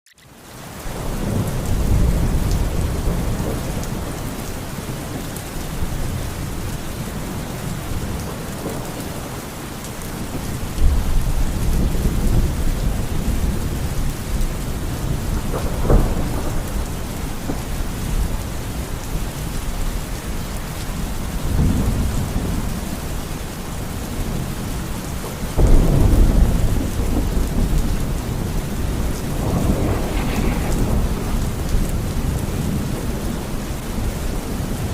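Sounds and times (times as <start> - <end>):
heavy rain: 0.2 - 34.9
low rolls of thunder: 0.9 - 9.6, 10.2 - 19.8, 21.0 - 24.8, 25.4 - 34.9
sharp thunderclap: 15.0 - 18.4, 25.6 - 33.6.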